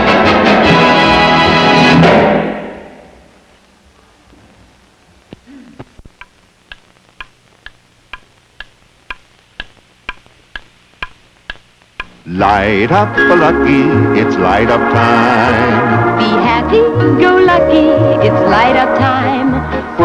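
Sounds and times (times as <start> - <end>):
clock ticking: 6.0 - 12.4.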